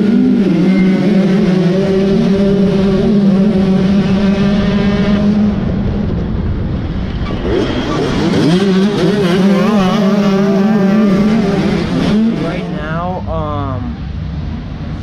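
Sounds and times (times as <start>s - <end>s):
motocross bike engine revving: 0.0s - 5.7s, 7.3s - 13.3s.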